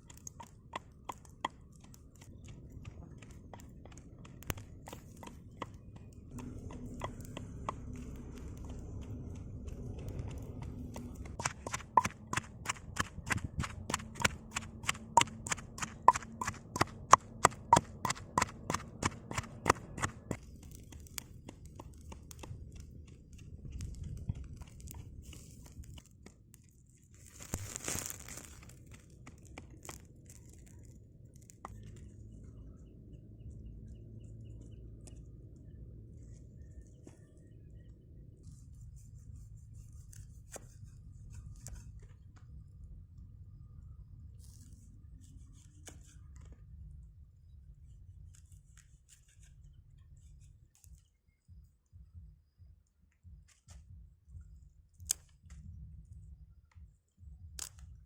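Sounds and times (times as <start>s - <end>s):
knife chopping on wooden board: 11.4s - 20.2s.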